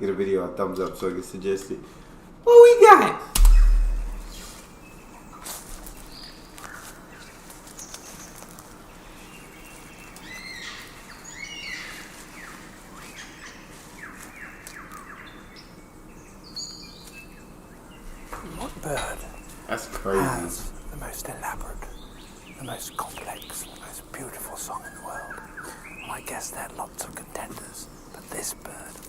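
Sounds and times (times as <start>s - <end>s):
faint steady hiss: 0.0s - 29.0s
birds chirping and whistling: 3.4s - 4.6s.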